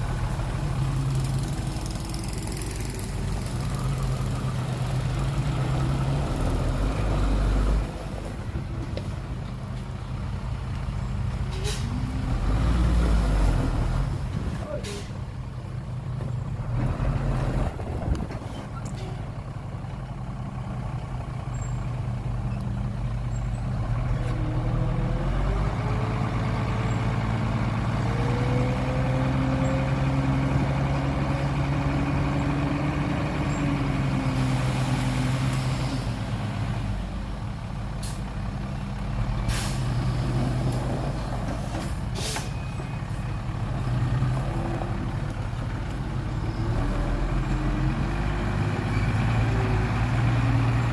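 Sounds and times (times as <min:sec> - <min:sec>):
dump truck diesel engine: 0:00.0 - 0:50.9
air brake hisses: 0:11.5 - 0:12.0, 0:39.5 - 0:40.0, 0:42.0 - 0:42.6.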